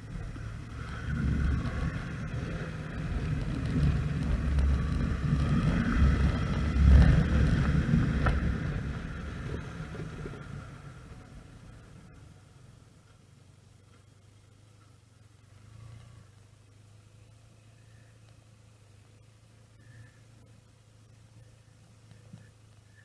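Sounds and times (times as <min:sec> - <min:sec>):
wind noise: 0:00.0 - 0:11.2
motorcycle engine rumble: 0:00.0 - 0:23.0.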